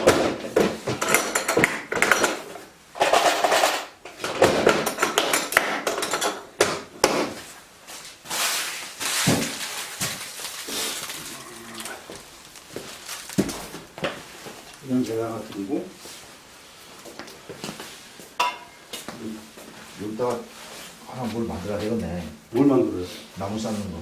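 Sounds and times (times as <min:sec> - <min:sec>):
knocks and metallic clanks: 0:00.0 - 0:07.5
rustling noise: 0:07.1 - 0:24.0.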